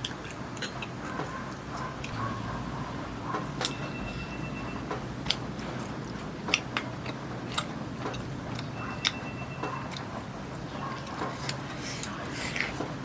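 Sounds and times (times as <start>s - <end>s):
person chewing food: 5.2s - 13.0s.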